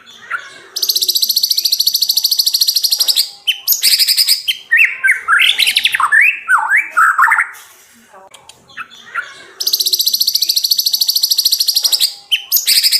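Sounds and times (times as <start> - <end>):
bird trilling: 8.8 - 12.9.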